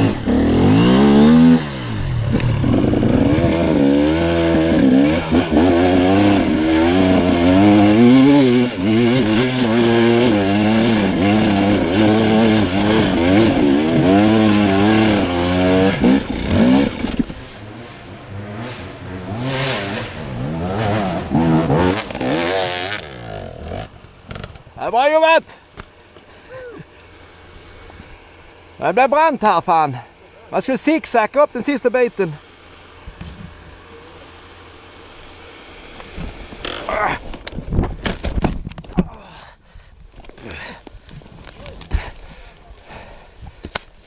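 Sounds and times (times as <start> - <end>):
dirt bike engine revving: 0.0 - 24.8, 26.7 - 37.3.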